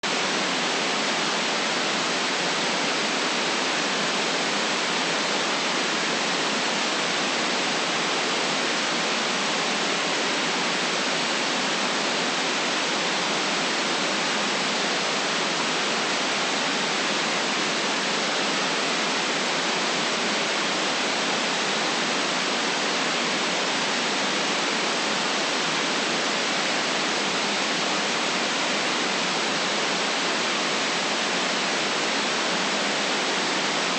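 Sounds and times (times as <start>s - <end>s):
white noise hiss: 0.0s - 33.9s.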